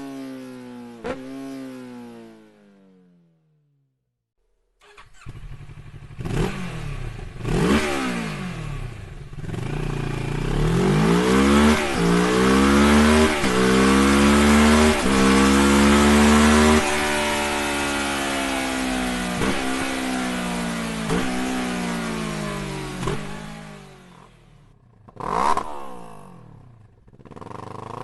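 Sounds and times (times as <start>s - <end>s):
motorcycle accelerating through gears: 4.8s - 28.0s.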